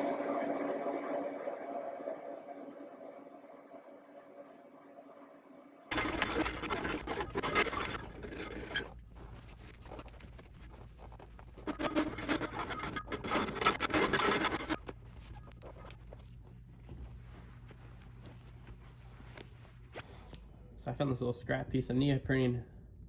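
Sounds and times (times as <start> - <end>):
hand tool scraping: 5.9 - 16.2.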